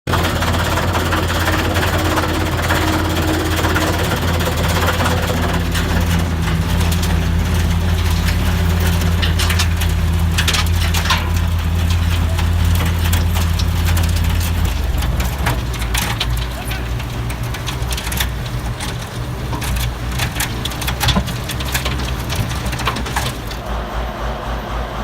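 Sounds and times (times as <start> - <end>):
snow blower engine running: 0.0 - 24.9.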